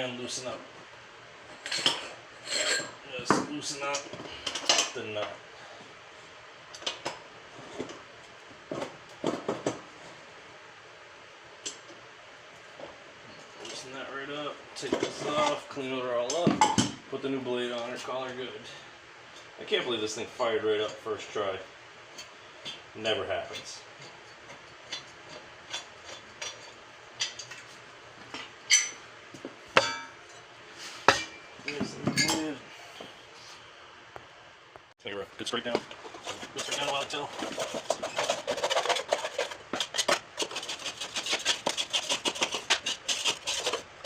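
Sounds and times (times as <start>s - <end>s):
ringing metallic clank: 29.8s - 30.4s.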